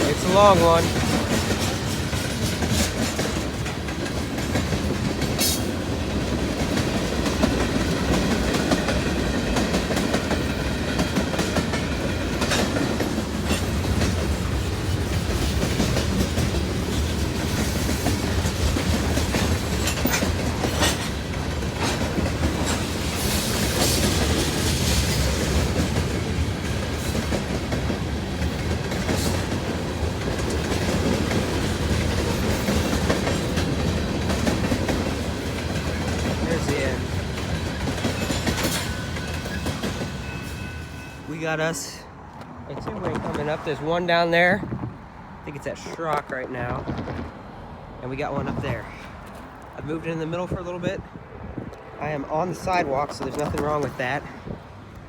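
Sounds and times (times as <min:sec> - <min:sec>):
wheels clicking over rail joints: 0:00.0 - 0:40.8
freight train rumbling past: 0:00.0 - 0:55.0.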